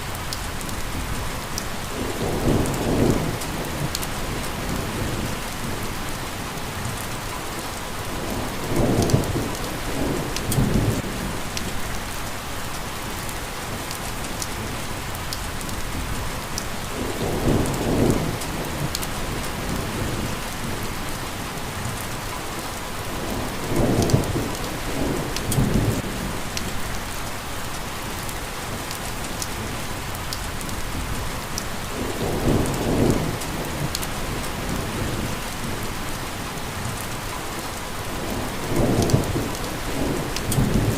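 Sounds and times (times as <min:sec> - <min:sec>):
rain falling: 0:00.0 - 0:40.9
raindrop ticks: 0:10.4 - 0:10.8, 0:25.4 - 0:25.8, 0:33.1 - 0:34.8, 0:38.8 - 0:40.9
thunder rumbling: 0:23.1 - 0:26.5, 0:31.9 - 0:36.1, 0:38.0 - 0:40.9.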